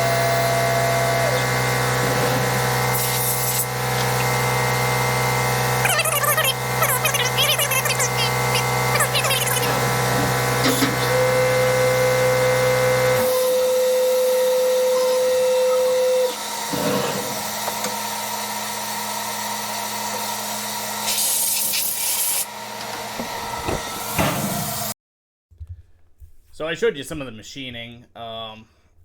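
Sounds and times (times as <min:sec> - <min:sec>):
milling machine hum and whine: 0:00.0 - 0:07.4
burst of hiss: 0:02.9 - 0:03.7.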